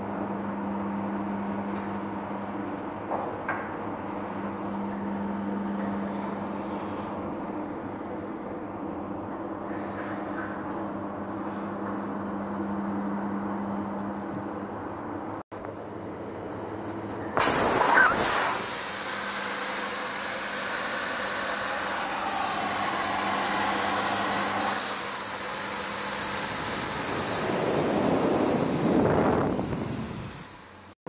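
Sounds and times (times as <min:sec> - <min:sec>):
compressed air hissing: 0:17.4 - 0:30.9.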